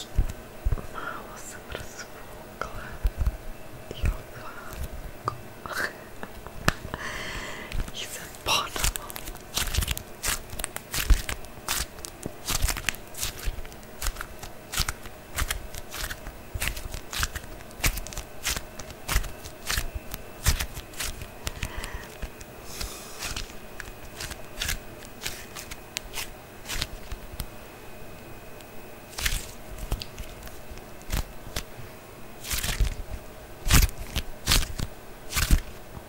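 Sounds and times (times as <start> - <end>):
crackling clicks and snaps: 7.7 - 22.6, 28.6 - 31.7, 32.4 - 35.8.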